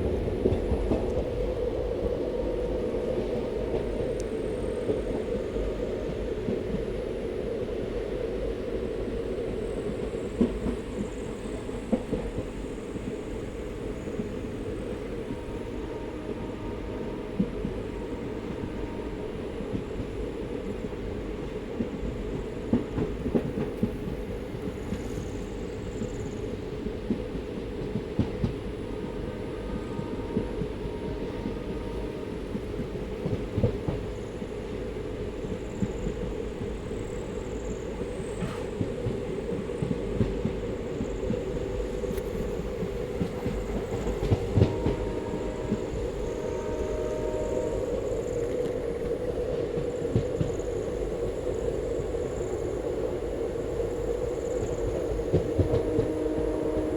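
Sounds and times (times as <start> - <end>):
train rumbling on rails: 0.0 - 56.9
train wheels knocking and clicking: 9.8 - 11.2, 21.4 - 25.3, 27.0 - 28.6, 32.5 - 34.5, 37.5 - 46.7, 48.2 - 50.7, 54.6 - 56.9
train wheels knocking: 37.6 - 47.4, 54.5 - 56.9.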